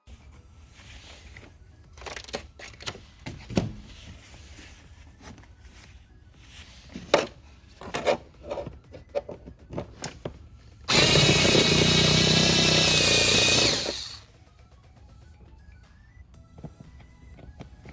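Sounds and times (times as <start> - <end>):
clicks and knocks of parts: 1.9 - 3.6
small electric power tool running: 10.9 - 14.2.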